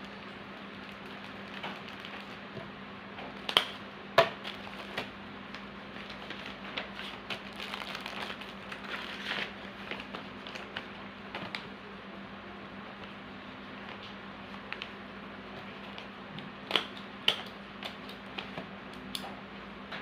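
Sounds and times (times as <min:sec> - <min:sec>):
steady low hum: 0:00.0 - 0:20.0
plastic crinkling: 0:00.1 - 0:02.6, 0:04.4 - 0:11.7.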